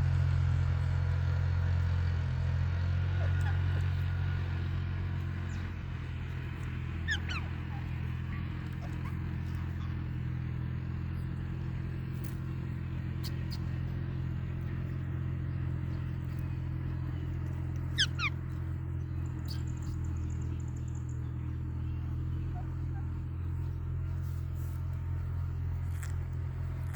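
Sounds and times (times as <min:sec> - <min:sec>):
steady low hum: 0:00.0 - 0:26.9
parrot chirping: 0:07.0 - 0:09.1, 0:17.8 - 0:18.6, 0:19.2 - 0:20.0.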